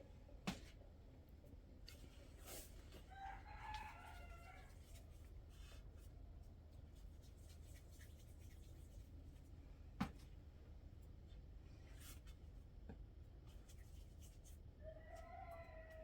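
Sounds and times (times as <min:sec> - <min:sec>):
faint rooster crowing: 0:02.9 - 0:05.2, 0:14.8 - 0:16.0.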